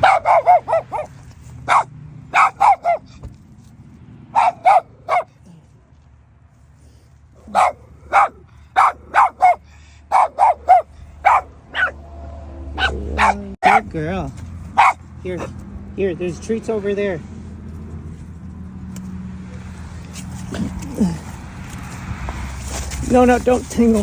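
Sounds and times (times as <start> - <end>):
dog barking: 0.0 - 3.2, 4.3 - 5.4, 7.4 - 12.0, 12.8 - 13.9, 14.7 - 15.6.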